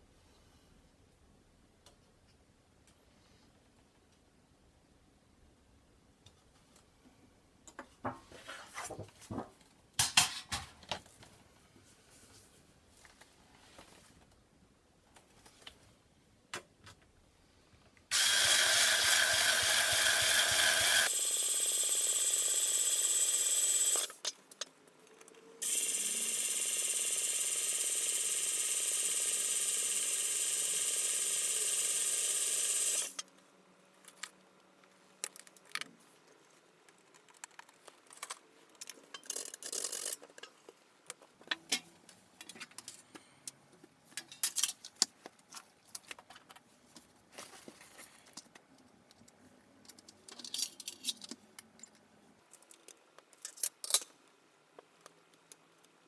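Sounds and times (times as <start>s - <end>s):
power tool motor running: 18.1s - 24.2s, 25.6s - 33.2s
metal parts clicking and scraping: 37.0s - 40.5s, 50.0s - 51.9s.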